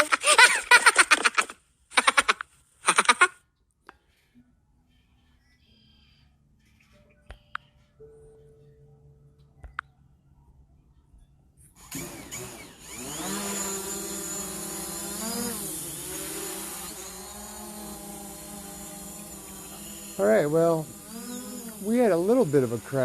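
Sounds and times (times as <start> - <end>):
drone motors whining: 11.8 - 23.0.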